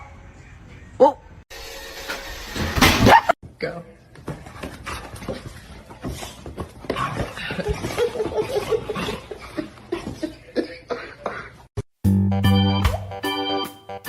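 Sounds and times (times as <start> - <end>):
person laughing: 7.4 - 11.7.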